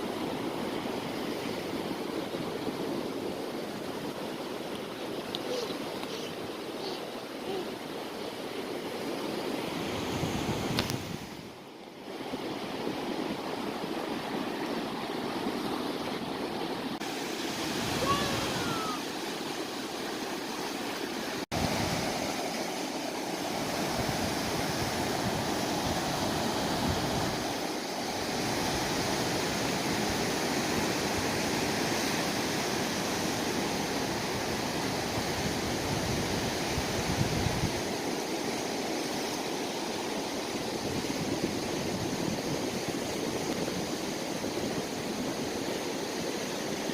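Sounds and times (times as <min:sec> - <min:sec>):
sea waves washing ashore: 0:00.0 - 0:46.9
wind on microphone: 0:09.7 - 0:11.6, 0:23.6 - 0:38.0, 0:40.6 - 0:46.8.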